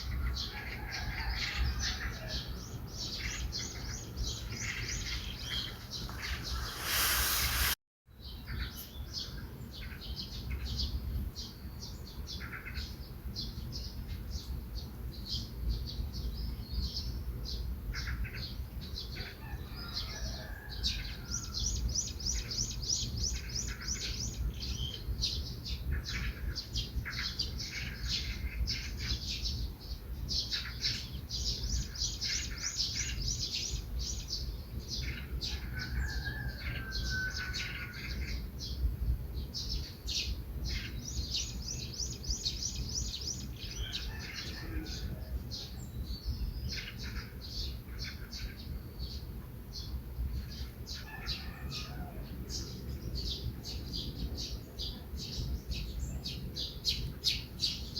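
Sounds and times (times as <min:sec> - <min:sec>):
songbirds chirping and singing: 0:00.0 - 0:57.9
loud rush of noise: 0:05.5 - 0:07.8.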